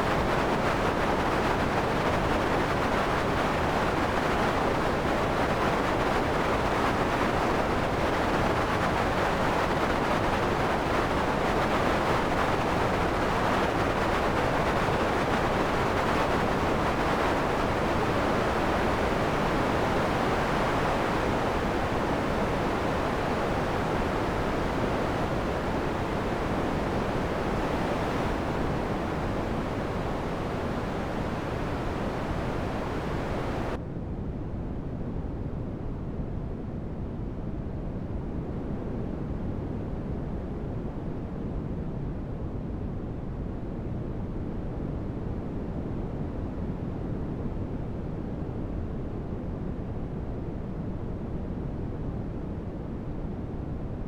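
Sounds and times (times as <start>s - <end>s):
synthesized wind noise: 0.0s - 54.0s.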